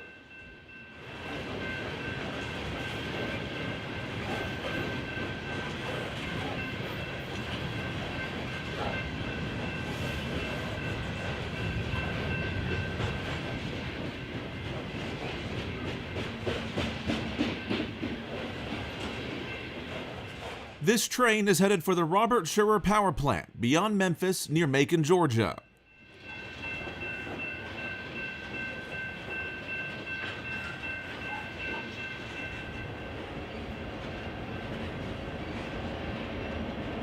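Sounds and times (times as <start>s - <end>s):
freight train wheels rumbling: 0.5s - 20.8s.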